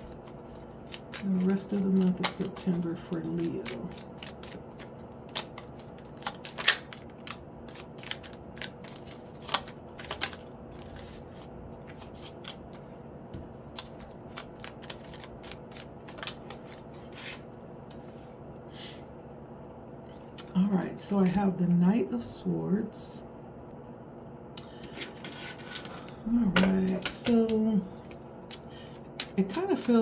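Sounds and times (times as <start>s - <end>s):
cards being shuffled: 0.0s - 18.4s, 24.9s - 28.3s, 29.0s - 30.0s.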